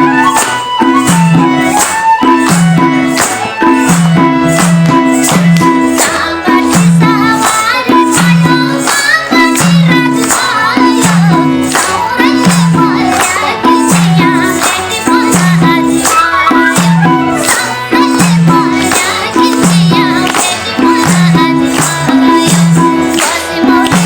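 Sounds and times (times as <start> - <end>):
repeating drum beat: 0.0 - 24.0
tambourine jingles: 0.0 - 24.0
wavering folk melody: 0.0 - 24.0.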